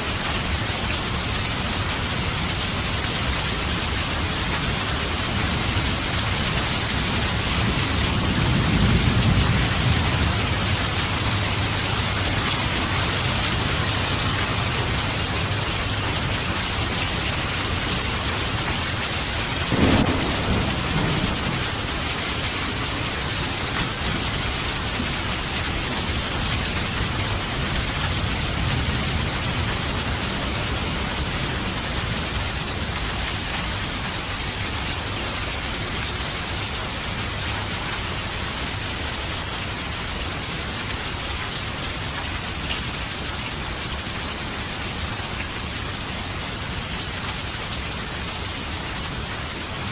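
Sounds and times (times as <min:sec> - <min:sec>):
heavy rain: 0:00.0 - 0:49.9
thunder rumbling: 0:04.9 - 0:32.9.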